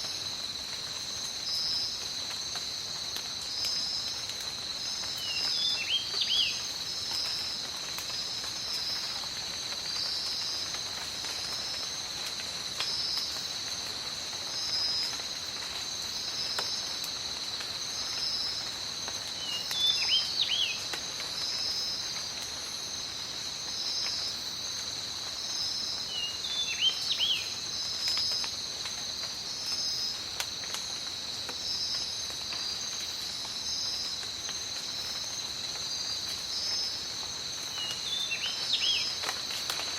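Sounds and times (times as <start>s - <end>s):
faint rain and drips: 0.0s - 39.9s
high insect chorus: 0.0s - 39.9s
pulsing insect call: 17.8s - 22.3s, 31.6s - 39.9s.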